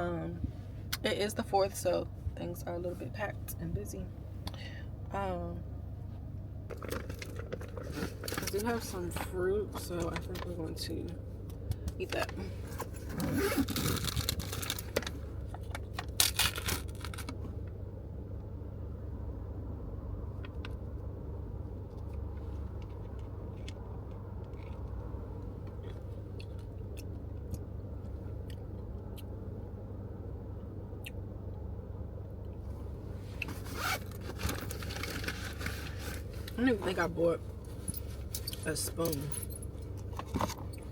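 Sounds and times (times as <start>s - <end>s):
car interior rumble: 0.0s - 40.9s
rustling and scraping: 6.7s - 10.6s, 12.1s - 17.5s, 32.7s - 40.9s.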